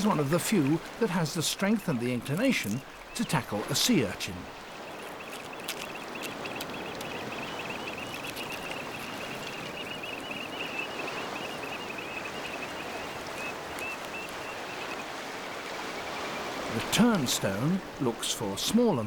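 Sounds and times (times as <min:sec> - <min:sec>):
seawater washing over rocks: 0:00.0 - 0:10.4, 0:12.3 - 0:19.0
faint high twittering: 0:04.6 - 0:16.5.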